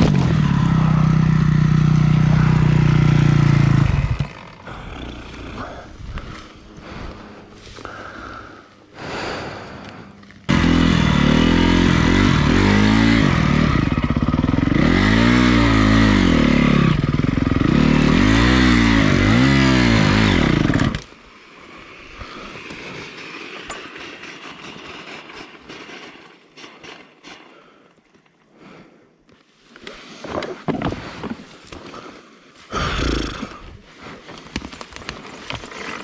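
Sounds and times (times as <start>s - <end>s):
motorcycle engine revving: 0.0s - 7.7s, 10.3s - 21.1s.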